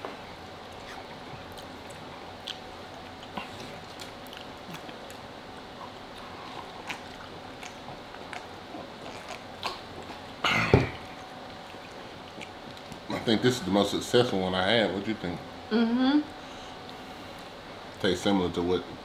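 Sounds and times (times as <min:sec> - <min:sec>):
chewing and biting food: 0:00.7 - 0:10.4, 0:11.0 - 0:13.1.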